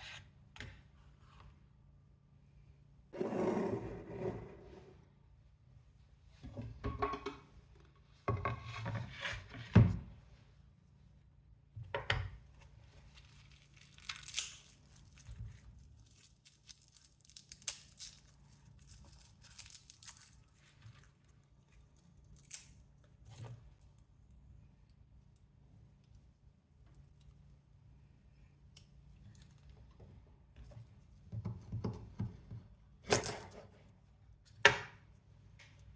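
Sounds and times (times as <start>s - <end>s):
rustles crinkles and tearing: 12.9s - 23.5s.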